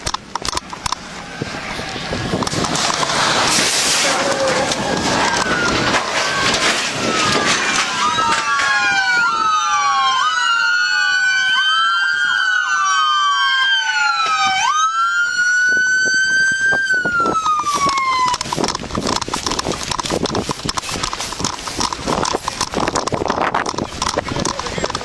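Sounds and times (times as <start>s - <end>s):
clattering and crackling noise: 0.0s - 10.2s, 16.1s - 25.0s
police sirens wailing: 0.7s - 25.0s.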